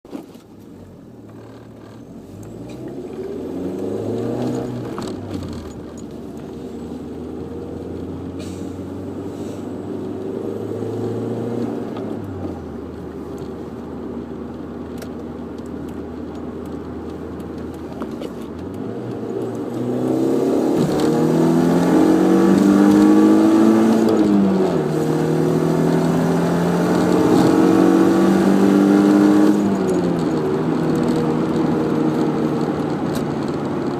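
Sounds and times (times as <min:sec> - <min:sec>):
car engine revving: 0:01.2 - 0:33.9.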